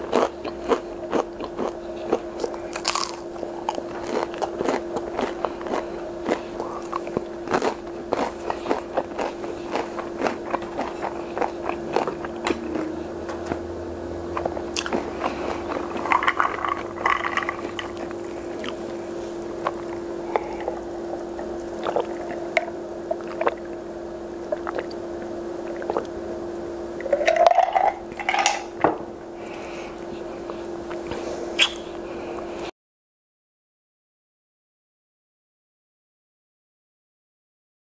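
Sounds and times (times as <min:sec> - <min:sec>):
close-miked chewing: 0:00.0 - 0:23.8, 0:24.4 - 0:26.2
low hum: 0:00.0 - 0:32.7
swallowing while drinking: 0:05.2 - 0:07.2, 0:14.4 - 0:19.0, 0:19.6 - 0:23.8, 0:24.5 - 0:25.0, 0:25.7 - 0:26.1.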